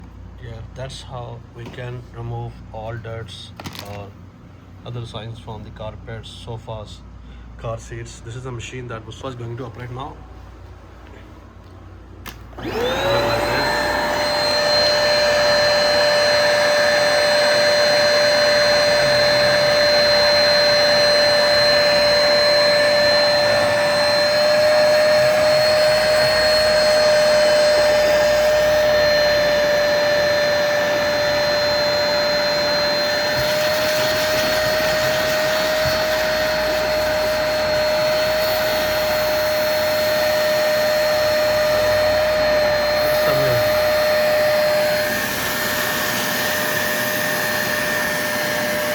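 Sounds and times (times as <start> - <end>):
carpet cleaner suction motor whine: 12.3 - 48.9.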